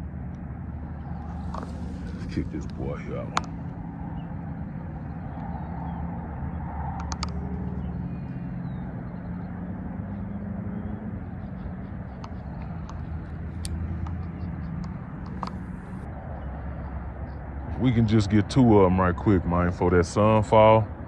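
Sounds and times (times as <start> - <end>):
sharp clicks: 6.9 - 7.8, 12.2 - 16.1.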